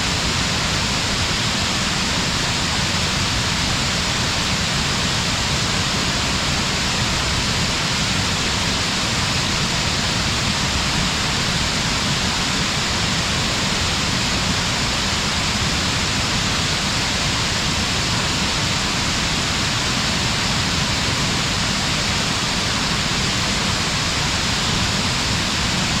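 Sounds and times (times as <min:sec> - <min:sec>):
distant waterfall rushing: 0:00.0 - 0:26.0.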